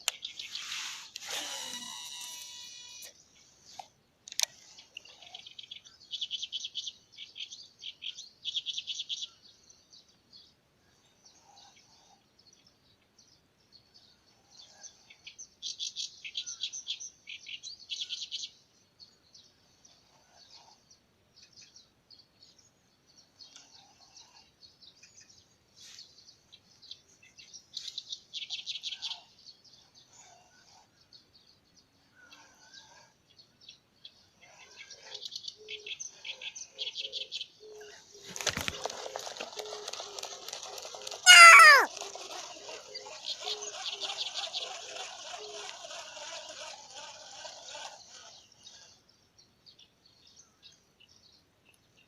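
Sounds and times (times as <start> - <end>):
fishing reel whirring: 0.6 - 3.1.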